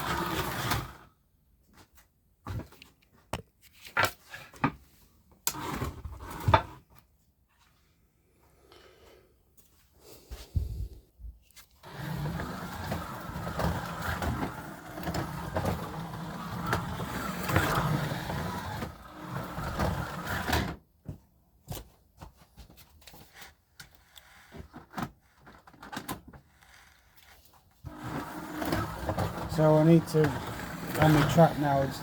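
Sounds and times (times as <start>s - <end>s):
slot car motor whining: 0.0s - 1.0s, 11.8s - 20.8s, 27.9s - 32.0s.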